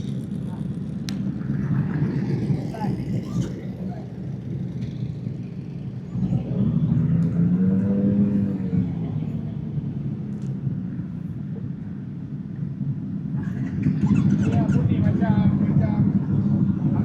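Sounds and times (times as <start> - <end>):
motorcycle engine running: 0.0 - 9.7
voices: 13.4 - 17.0.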